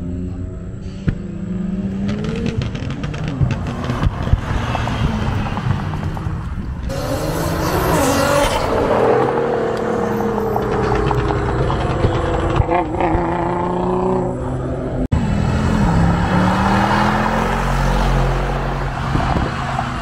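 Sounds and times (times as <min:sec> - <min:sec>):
supercar engines revving: 0:00.0 - 0:20.0
car accelerating past: 0:01.1 - 0:20.0.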